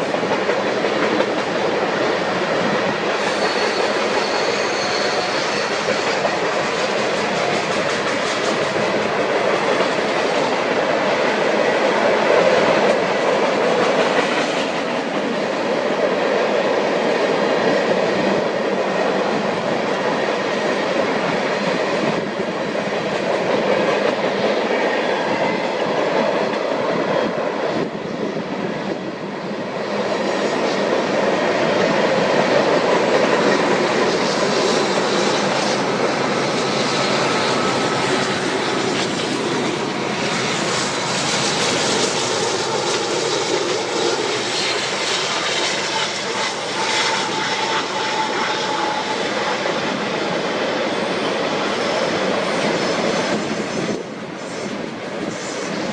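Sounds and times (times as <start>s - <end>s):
steel wheels clattering on rails: 0.0s - 18.8s
freight train cars rolling past: 0.0s - 55.9s.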